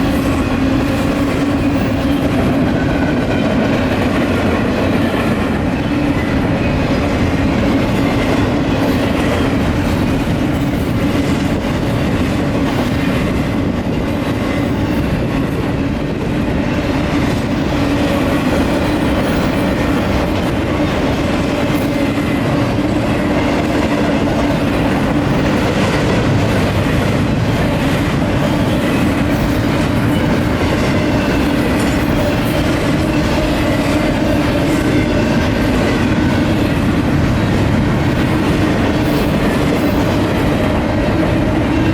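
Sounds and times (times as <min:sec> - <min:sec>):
freight train rolling past: 0:00.0 - 0:41.9.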